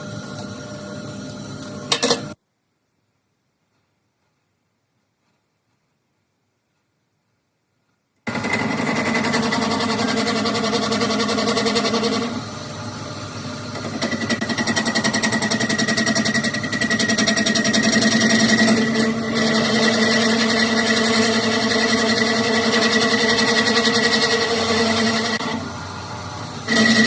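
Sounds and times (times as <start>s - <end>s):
workshop machine humming: 0.0s - 2.4s, 8.3s - 27.0s
fast buzzing rattle: 8.3s - 25.4s.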